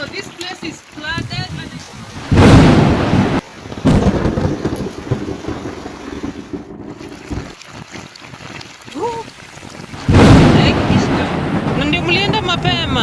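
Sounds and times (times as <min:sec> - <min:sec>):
steady rain: 0:00.0 - 0:13.0
thunder clap rumbling: 0:02.2 - 0:07.6, 0:09.7 - 0:13.0.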